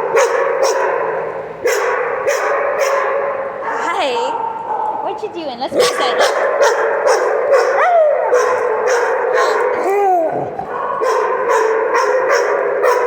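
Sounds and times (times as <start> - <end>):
big dogs barking: 0.0 - 13.0
dog howling call: 6.4 - 13.0.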